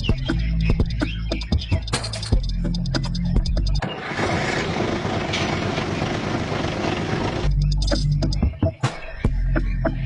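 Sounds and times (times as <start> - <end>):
dense noisy music: 0.0 - 10.0
low steady engine hum: 3.8 - 8.0.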